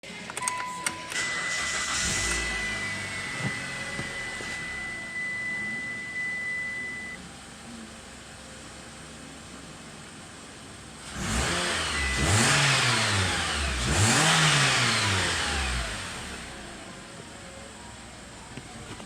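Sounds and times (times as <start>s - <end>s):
car engine starting and running: 0.0s - 19.0s
short beep: 0.4s - 7.2s
high electronic tone: 0.6s - 7.2s.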